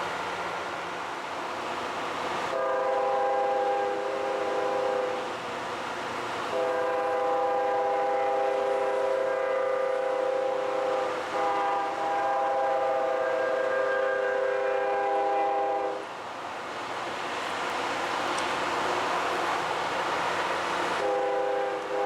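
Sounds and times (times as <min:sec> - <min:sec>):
locomotive air horn blasts: 0:02.5 - 0:05.3, 0:06.5 - 0:16.1, 0:21.0 - 0:22.0.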